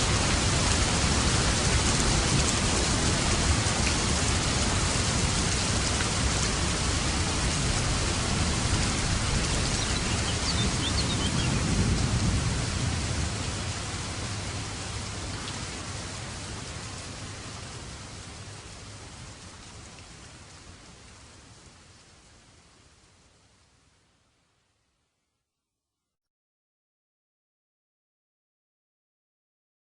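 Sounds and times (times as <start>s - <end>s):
steady rain: 0.0s - 25.1s
low thunder rumble: 7.3s - 15.2s.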